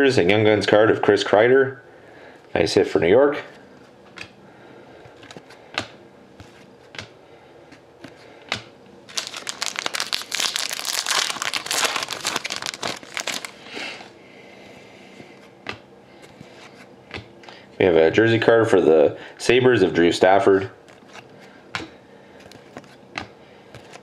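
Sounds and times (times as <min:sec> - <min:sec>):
wrapper crinkling: 0:09.1 - 0:13.8.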